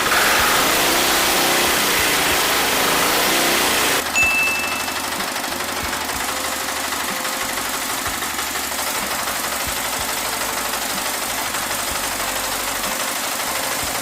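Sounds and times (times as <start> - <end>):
diesel motorcycle engine idling: 4.0 - 14.0.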